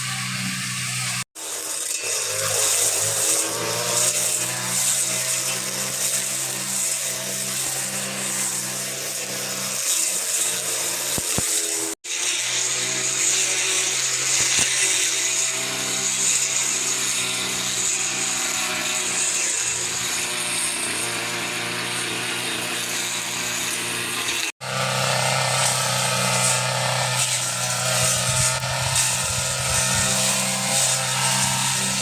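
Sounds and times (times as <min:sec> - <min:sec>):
small motor running: 0:00.0 - 0:32.0.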